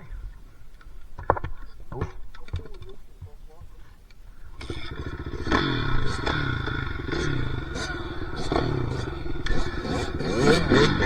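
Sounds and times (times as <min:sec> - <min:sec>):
dirt bike engine revving: 0:04.6 - 0:11.0.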